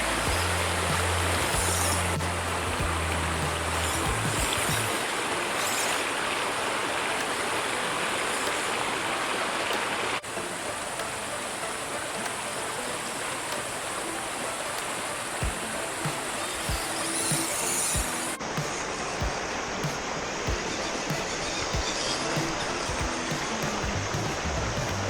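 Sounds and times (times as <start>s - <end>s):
waterfall rushing water: 0.0s - 25.0s.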